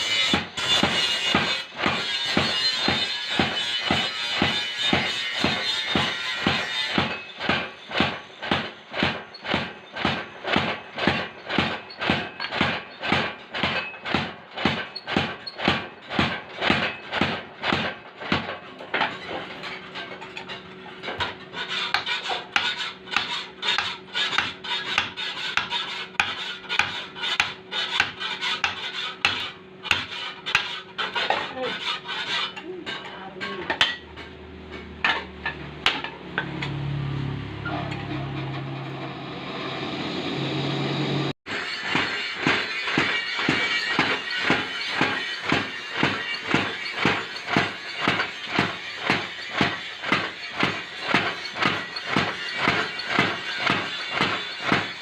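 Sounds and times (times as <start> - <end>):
hammer ringing on metal: 0.0 - 8.7.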